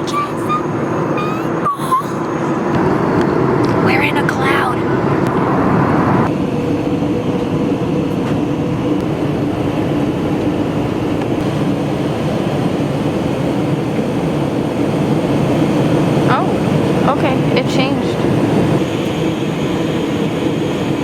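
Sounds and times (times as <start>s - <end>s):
airliner cabin engine noise: 0.0s - 21.0s.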